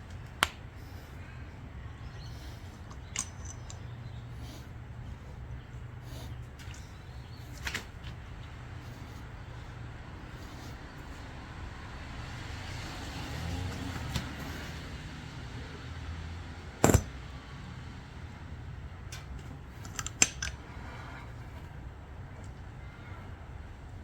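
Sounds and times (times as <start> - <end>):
steady low hum: 0.0 - 24.0
tyre plug tool clicking: 2.9 - 3.8.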